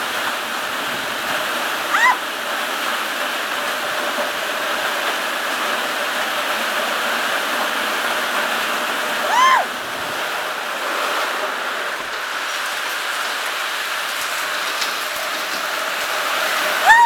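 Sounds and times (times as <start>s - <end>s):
heavy rain pouring: 0.0s - 17.0s
short high rising-falling call: 1.9s - 2.2s, 9.2s - 9.7s.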